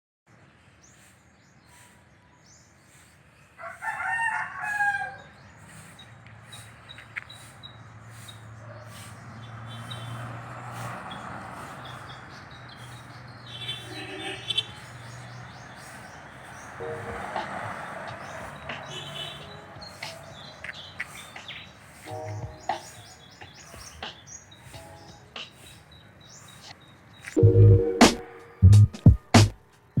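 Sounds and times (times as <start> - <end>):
small birds chirping: 0.3 - 27.4
rooster crowing: 3.6 - 5.4.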